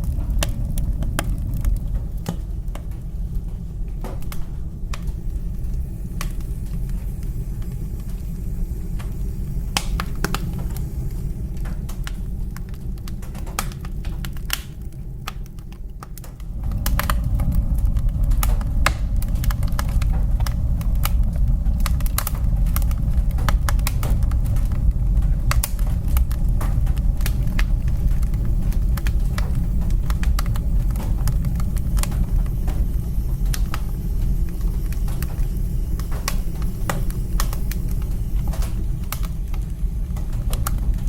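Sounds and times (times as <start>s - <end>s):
low rumble of flames: 0.0s - 41.0s
wood fire crackling and popping: 0.0s - 41.0s.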